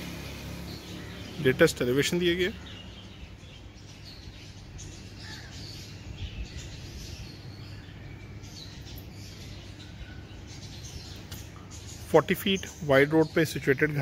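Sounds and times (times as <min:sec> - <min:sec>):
birds calling and chirping: 0:00.0 - 0:14.0.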